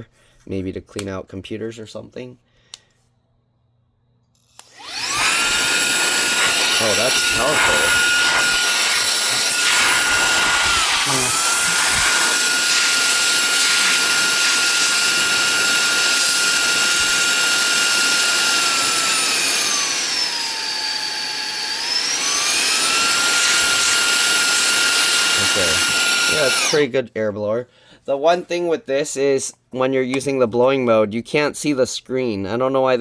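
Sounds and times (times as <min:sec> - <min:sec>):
handheld vacuum motor whine: 0:04.4 - 0:26.8.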